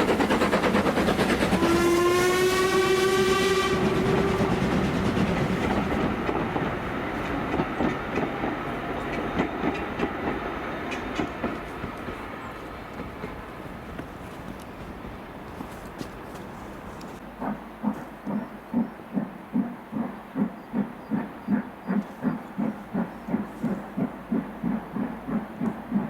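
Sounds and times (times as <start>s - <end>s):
train wheels clicking over rail joints: 0.0s - 26.0s
steam locomotive whistle: 1.1s - 6.1s.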